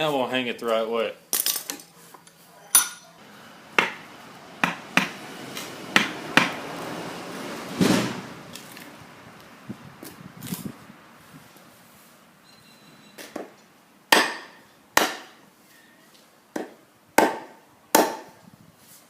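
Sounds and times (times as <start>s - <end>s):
short rushing noise: 4.8s - 9.0s.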